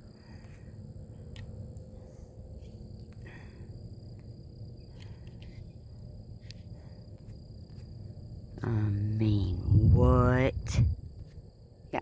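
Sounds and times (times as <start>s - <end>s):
crickets trilling: 0.0s - 12.0s
low rumble: 8.6s - 11.3s.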